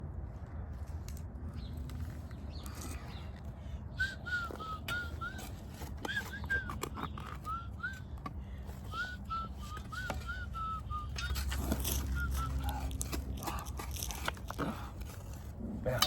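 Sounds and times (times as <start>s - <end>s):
short whistled notes: 4.0s - 8.1s, 8.9s - 12.9s.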